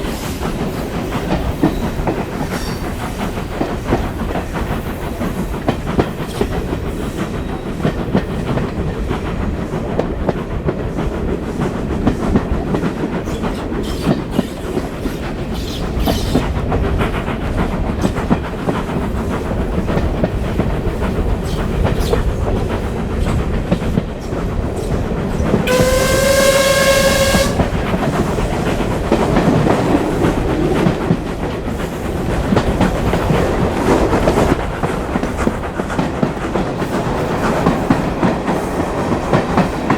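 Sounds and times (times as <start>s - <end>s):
steam train rumble: 0.0s - 39.9s
steam whistle: 25.6s - 28.0s.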